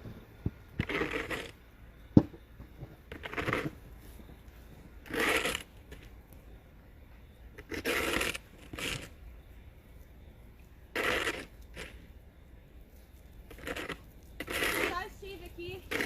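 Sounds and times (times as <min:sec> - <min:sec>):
snow being scraped: 0:00.8 - 0:01.5, 0:03.1 - 0:03.8, 0:05.0 - 0:05.7, 0:07.7 - 0:09.1, 0:10.9 - 0:12.0, 0:13.5 - 0:16.0.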